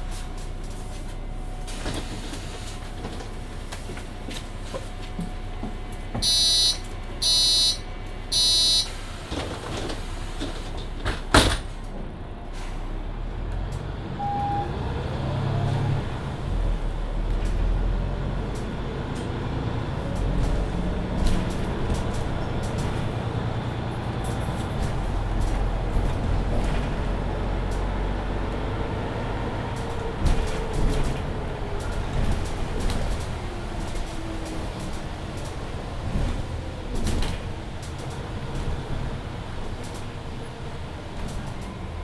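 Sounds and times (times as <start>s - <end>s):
bus doors clacking shut: 0.0s - 42.0s
bus engine whine pulling away: 0.0s - 42.0s
warning beeps: 6.2s - 9.0s.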